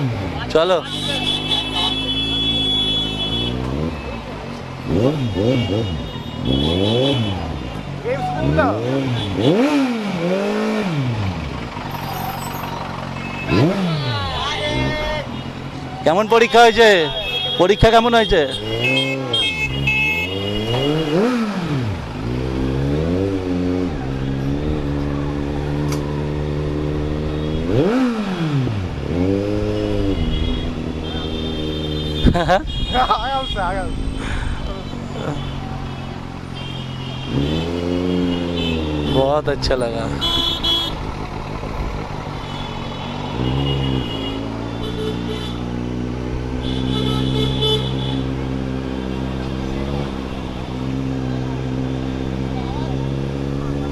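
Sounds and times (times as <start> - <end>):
superbike engine revving: 0.0 - 15.9, 18.0 - 53.9
road traffic: 0.0 - 53.9
vehicle horns tooting: 0.6 - 4.2, 4.9 - 9.7, 11.9 - 21.4, 27.2 - 28.6, 29.2 - 34.2, 34.8 - 41.1, 42.3 - 51.2.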